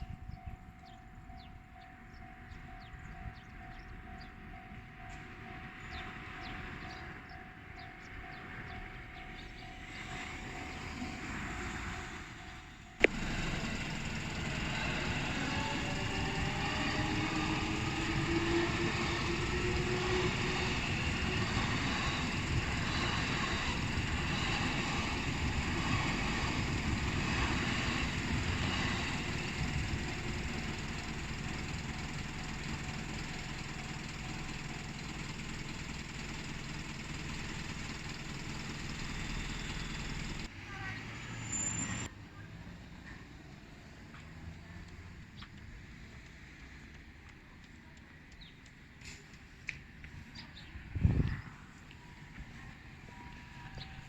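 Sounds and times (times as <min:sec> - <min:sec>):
level crossing warning signal: 0:00.0 - 0:40.5
electric train passing: 0:00.0 - 0:42.1.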